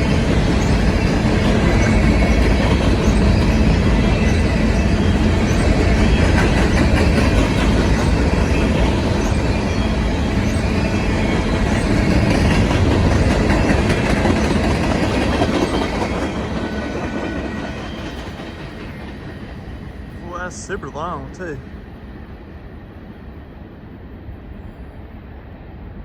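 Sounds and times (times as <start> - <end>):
freight train wheels clattering: 0.0 - 19.4.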